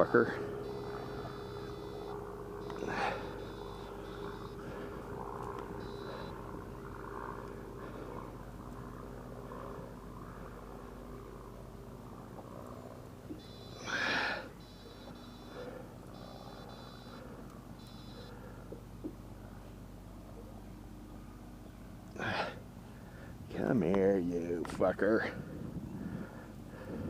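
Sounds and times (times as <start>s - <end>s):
outboard motor idling: 0.0s - 23.6s.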